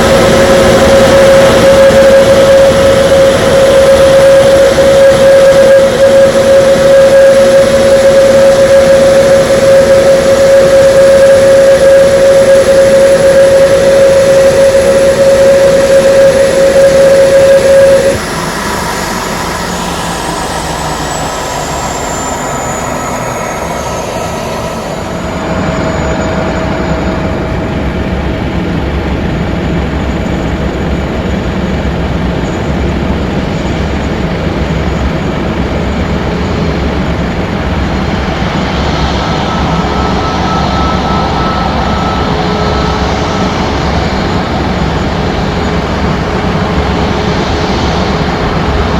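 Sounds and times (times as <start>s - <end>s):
jet engines whining: 0.0s - 48.9s.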